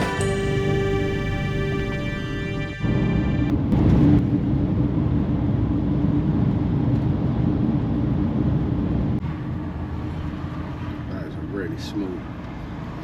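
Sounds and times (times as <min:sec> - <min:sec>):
road noise: 0:00.0 - 0:03.8, 0:08.7 - 0:13.0
low hum: 0:00.0 - 0:04.9
vehicle engine drone: 0:00.0 - 0:13.0.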